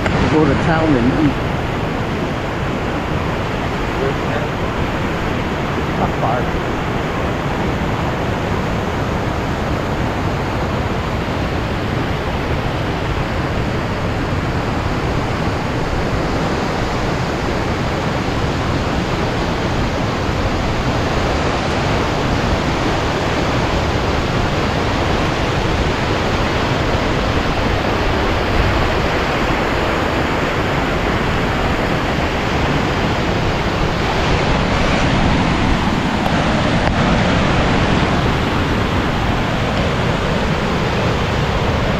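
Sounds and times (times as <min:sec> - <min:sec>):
fast river water rushing: 0:00.0 - 0:41.9.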